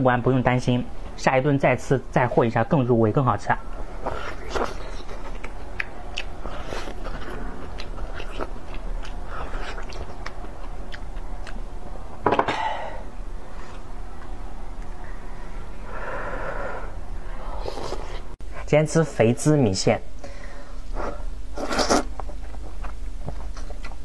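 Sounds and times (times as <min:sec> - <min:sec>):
wet chewing clicks and smacks: 0:04.4 - 0:07.1, 0:07.7 - 0:11.6.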